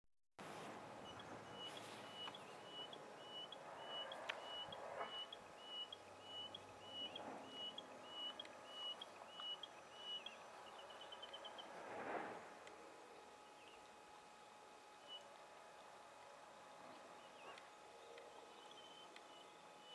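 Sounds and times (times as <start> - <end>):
bird trill: 1.0 - 11.7, 17.2 - 19.9
songbird whistled note: 1.0 - 11.7.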